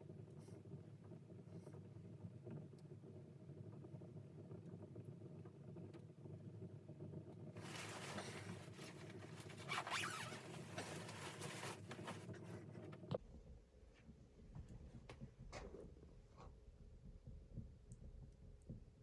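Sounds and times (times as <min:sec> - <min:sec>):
rustling scraping noise: 0:07.6 - 0:13.0.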